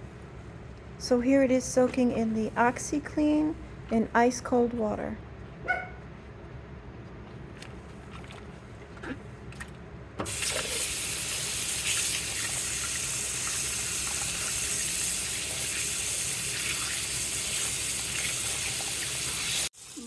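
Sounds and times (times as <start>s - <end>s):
tap water running into sink: 10.3s - 20.0s.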